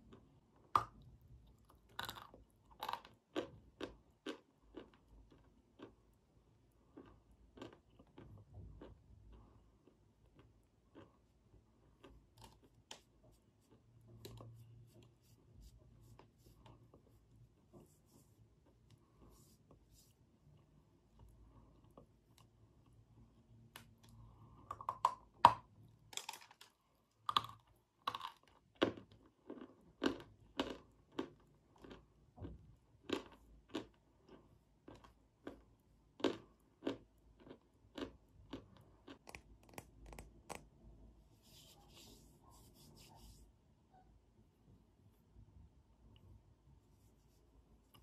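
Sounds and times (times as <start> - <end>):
crunching and chewing hard block: 0.0 - 14.6, 24.1 - 40.7.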